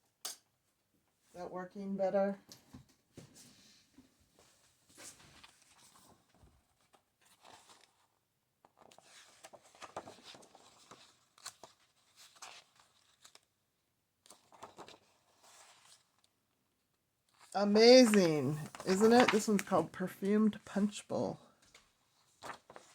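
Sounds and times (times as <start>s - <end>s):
book pages rustling: 4.9s - 13.6s, 14.2s - 16.3s, 17.3s - 21.0s, 21.6s - 22.9s.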